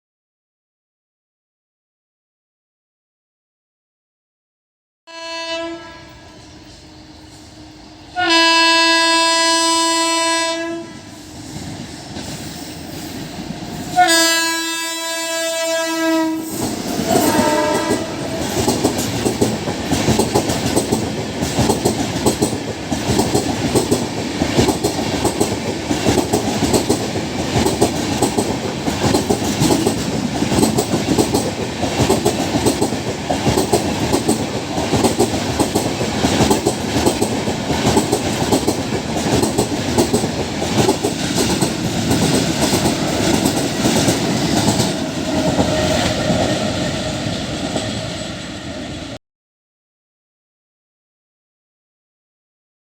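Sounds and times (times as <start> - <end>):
electric locomotive horn blasts: 5.1 - 7.4, 8.1 - 11.2, 13.8 - 18.6
train coaches rumbling past: 5.1 - 49.2.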